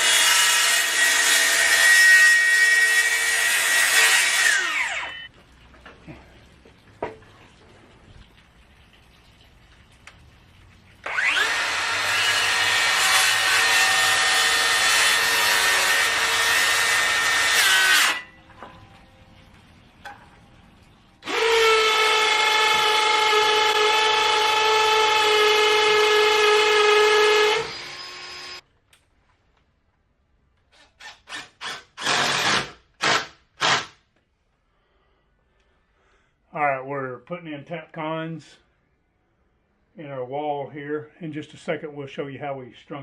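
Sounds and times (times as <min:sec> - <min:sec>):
power saw cutting wood: 0:00.0 - 0:05.3, 0:11.0 - 0:18.3, 0:21.2 - 0:28.6, 0:30.8 - 0:33.9
saw motor whine: 0:11.1 - 0:13.0, 0:27.4 - 0:28.6.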